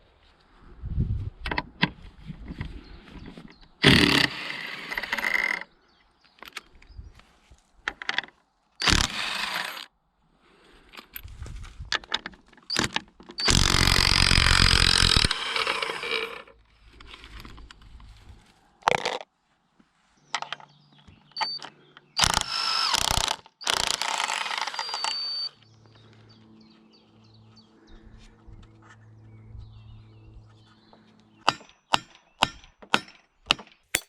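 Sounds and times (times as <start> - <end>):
power tool bursts: 3.8 - 5.6, 8.8 - 9.9, 12.7 - 16.4, 22.2 - 25.6.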